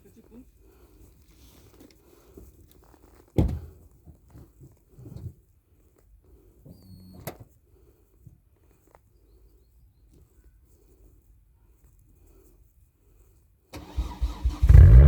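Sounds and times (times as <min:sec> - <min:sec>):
car door shutting: 0:03.4 - 0:03.7.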